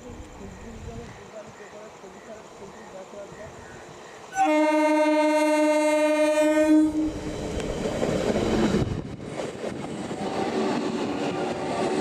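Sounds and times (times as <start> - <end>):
train running past: 0.0 - 12.0
locomotive horn: 4.3 - 7.2.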